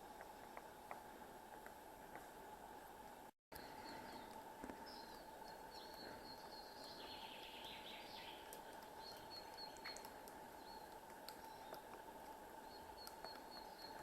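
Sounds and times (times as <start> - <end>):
steady low hiss: 0.0 - 14.0
small birds chirping: 3.6 - 14.0.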